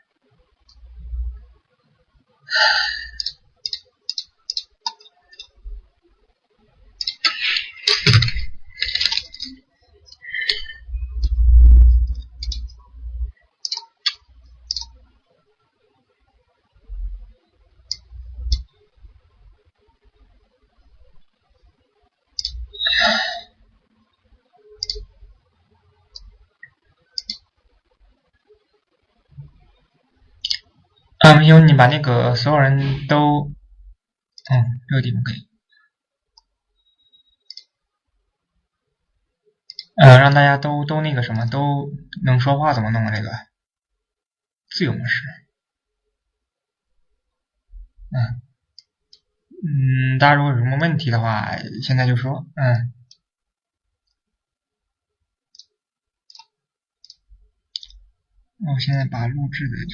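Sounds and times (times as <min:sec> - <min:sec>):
breathy sigh: 0:02.5 - 0:03.2, 0:22.8 - 0:23.5
computer mouse clicking: 0:03.2 - 0:05.6, 0:07.0 - 0:11.4, 0:12.1 - 0:12.8, 0:13.6 - 0:15.0, 0:17.9 - 0:18.7, 0:24.8 - 0:25.1, 0:27.2 - 0:27.4, 0:56.3 - 0:57.2.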